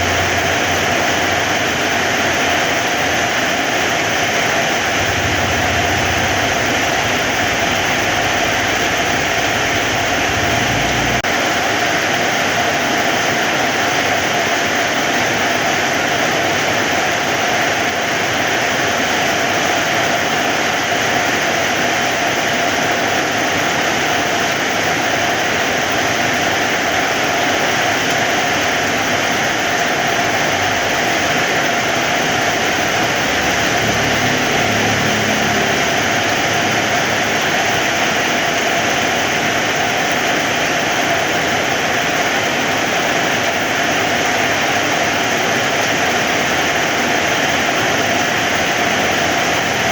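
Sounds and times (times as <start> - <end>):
heavy rain downpour: 0.0 - 49.9
low rumble: 5.0 - 11.3.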